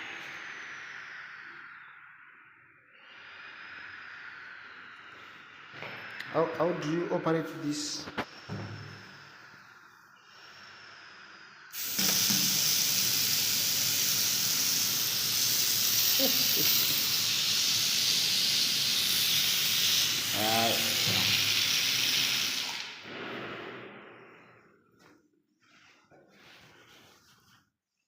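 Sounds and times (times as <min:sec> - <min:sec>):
water running hard: 0:11.8 - 0:23.0.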